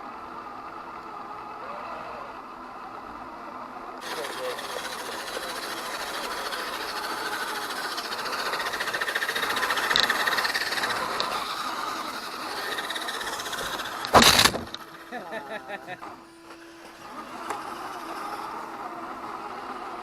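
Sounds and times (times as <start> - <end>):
toy car motor and gears whining: 0.0 - 20.0
brief loud burst: 14.1 - 14.8.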